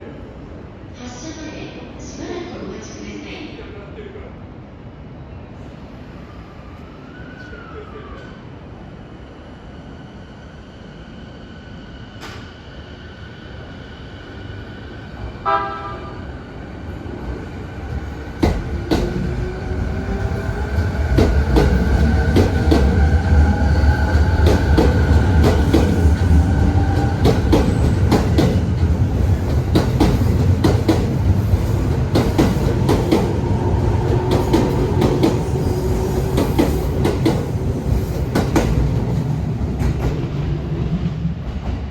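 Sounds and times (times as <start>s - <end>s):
deep train rumble: 13.6s - 41.9s.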